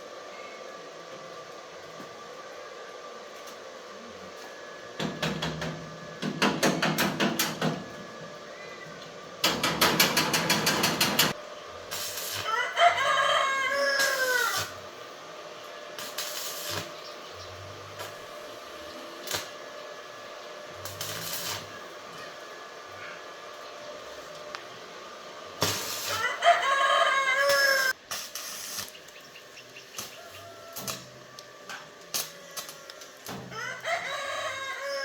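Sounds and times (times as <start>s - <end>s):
rooster crowing: 12.3s - 14.9s, 26.1s - 28.0s, 29.9s - 35.0s.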